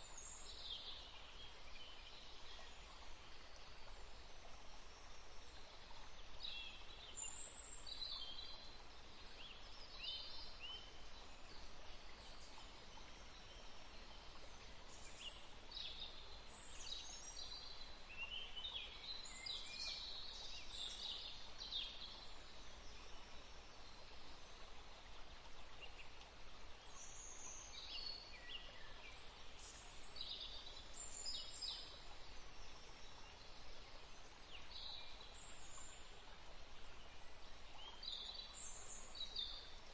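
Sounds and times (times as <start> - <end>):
faint steady hiss: 0.0 - 39.9
songbirds chirping: 0.0 - 39.9.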